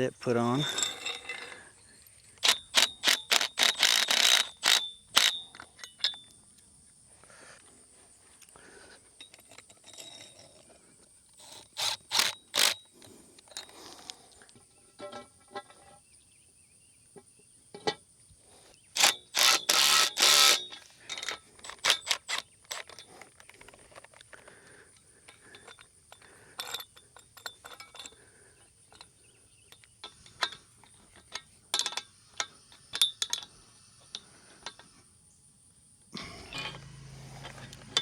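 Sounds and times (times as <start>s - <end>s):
metal hardware clicking and clanking: 0.2s - 1.6s, 2.4s - 6.3s, 19.0s - 24.5s, 25.3s - 28.2s, 29.7s - 33.5s, 36.4s - 38.0s.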